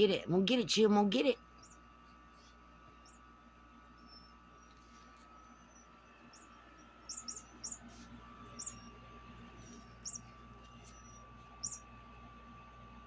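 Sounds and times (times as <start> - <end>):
toy bird chirping: 5.7 - 8.9, 9.8 - 11.9.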